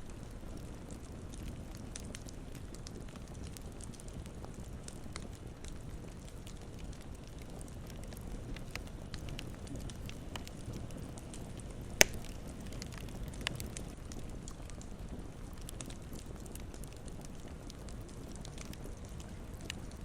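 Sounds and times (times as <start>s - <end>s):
campfire burning: 0.0s - 20.0s
fire crackling: 0.0s - 20.0s
loud sharp pop: 12.0s - 12.3s.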